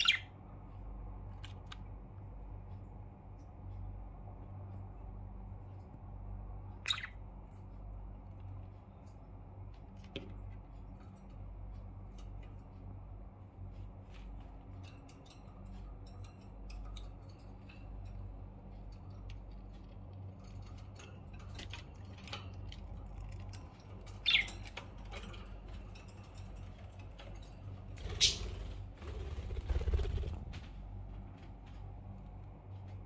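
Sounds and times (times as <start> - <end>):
budgerigars chirping: 0.0 - 0.3, 6.8 - 7.2, 24.2 - 24.8, 28.1 - 28.5
steady low hum: 0.0 - 33.0
small clicks and ticks: 0.5 - 28.4.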